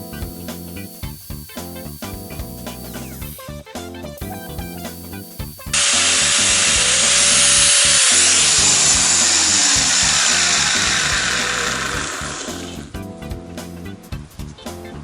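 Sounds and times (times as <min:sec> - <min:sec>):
background music: 0:00.0 - 0:15.0
power tool rasping hiss: 0:04.5 - 0:12.9.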